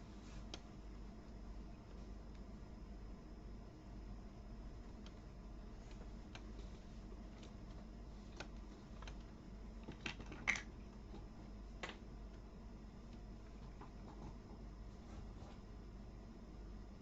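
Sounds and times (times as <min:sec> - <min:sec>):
faint low hum: 0:00.0 - 0:17.0
plastic toy pieces clicking: 0:09.9 - 0:10.7.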